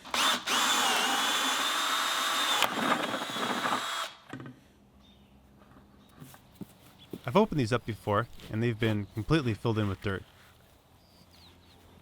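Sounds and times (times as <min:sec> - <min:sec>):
power drill whining: 0:00.0 - 0:04.3.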